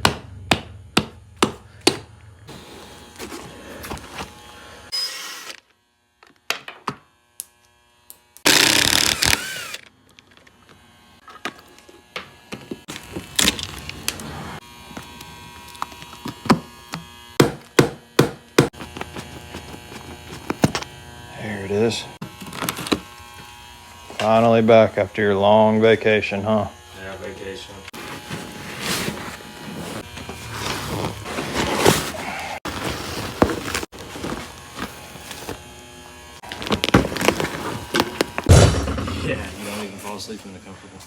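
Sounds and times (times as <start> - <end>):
hand tools knocking on wood: 0.0 - 2.1, 17.4 - 19.2.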